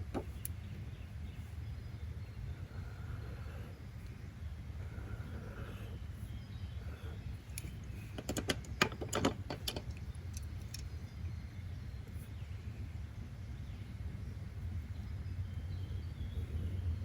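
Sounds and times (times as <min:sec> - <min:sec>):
sharp light clicks and taps: 0:07.5 - 0:11.0.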